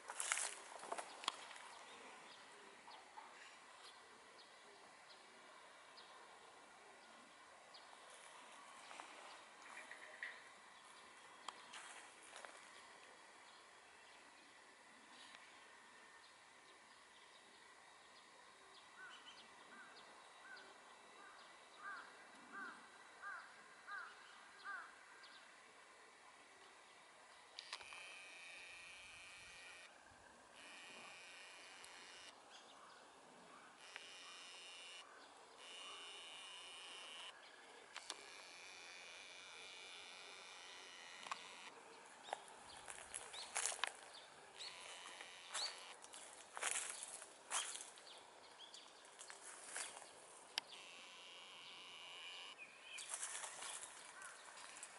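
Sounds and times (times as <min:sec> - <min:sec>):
faint small birds chirping: 0:00.0 - 0:54.9
faint steady high hum: 0:00.0 - 0:54.9
small birds chirping: 0:33.7 - 0:54.9.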